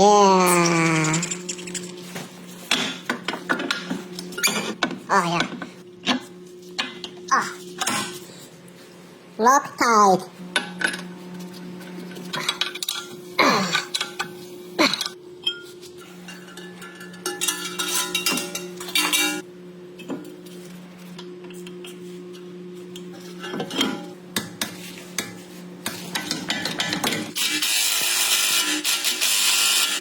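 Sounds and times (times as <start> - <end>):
metal tools clinking and scraping: 14.9 - 19.4.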